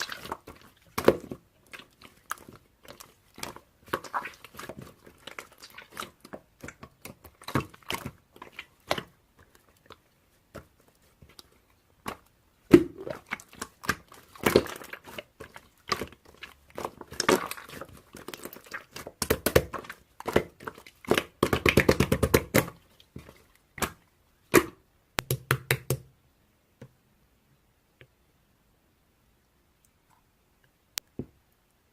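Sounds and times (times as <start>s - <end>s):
slime squeezed with sticky pops: 23.7s - 26.0s.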